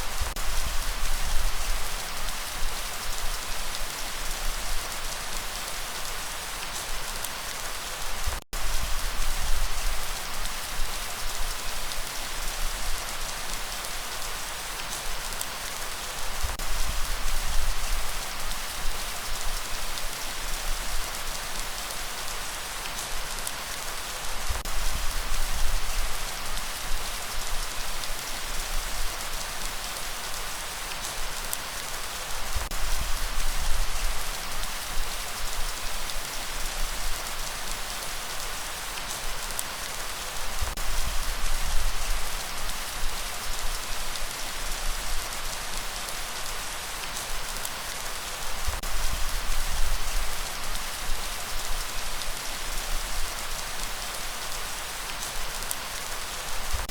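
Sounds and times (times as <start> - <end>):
steady rainfall: 0.0 - 56.9.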